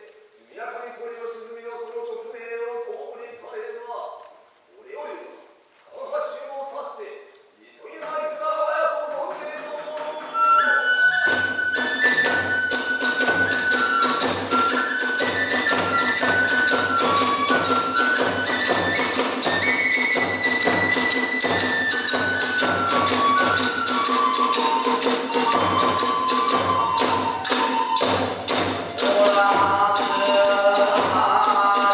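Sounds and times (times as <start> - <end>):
bamboo flute melody: 9.5 - 31.9
drum beat: 11.2 - 31.9.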